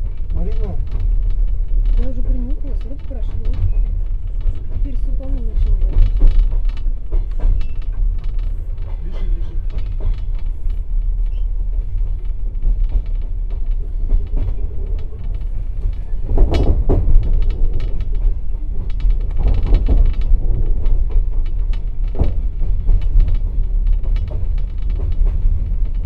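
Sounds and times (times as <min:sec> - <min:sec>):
train wheels rumbling: 0:00.0 - 0:26.0
wheels clacking over rail joints: 0:00.0 - 0:26.0.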